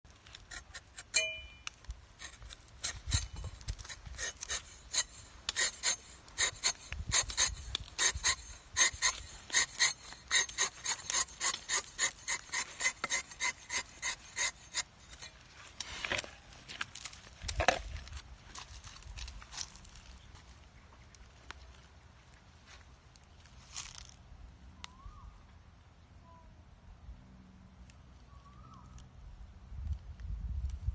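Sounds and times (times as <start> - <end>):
knife shaving bark: 0.3 - 1.6, 2.2 - 15.9
wind rumble on microphone: 29.2 - 30.9.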